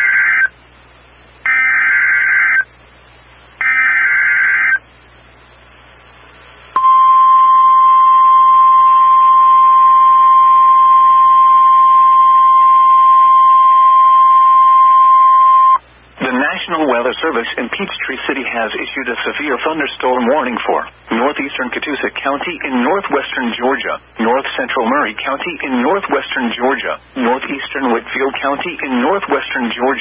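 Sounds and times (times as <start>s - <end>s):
steady warning alarm tone: 1.4s - 2.7s, 3.6s - 4.8s, 6.8s - 15.8s.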